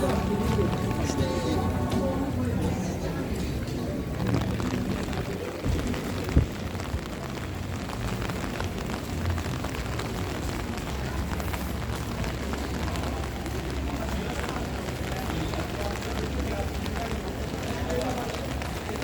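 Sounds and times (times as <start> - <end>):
heavy rain in strong wind: 0.0 - 19.0.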